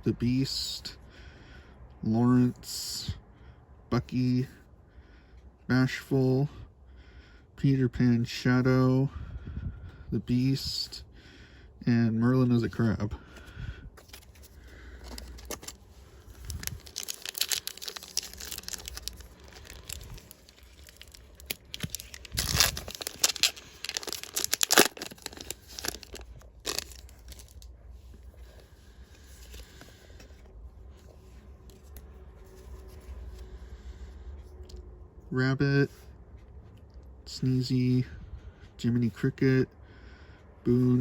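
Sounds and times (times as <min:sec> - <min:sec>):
wrapper tearing and crinkling: 0:15.0 - 0:27.7.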